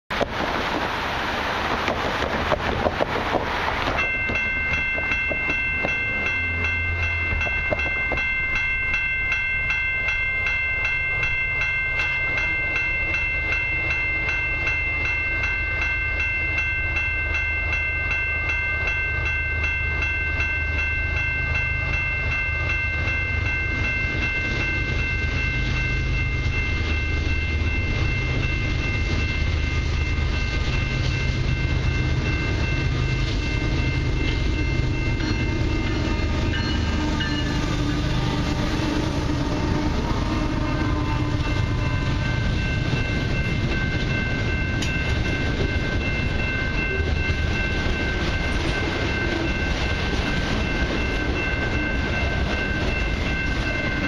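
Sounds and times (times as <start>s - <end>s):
diesel locomotives rumbling: 0.1s - 54.0s
high-pitched ringing tone: 4.0s - 54.0s.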